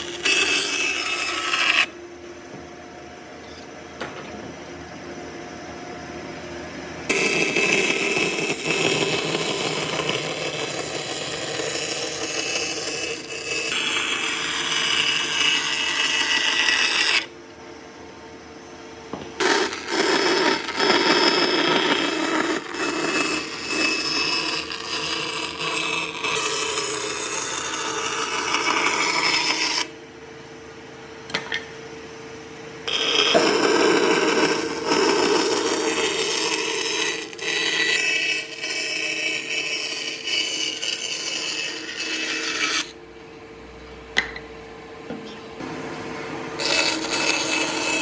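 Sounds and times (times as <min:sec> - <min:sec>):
rough wood cutting noise: 0:00.0 - 0:02.0, 0:07.1 - 0:17.4, 0:19.4 - 0:30.0, 0:32.9 - 0:43.0, 0:46.5 - 0:48.0
power tool motor hum: 0:46.6 - 0:48.0.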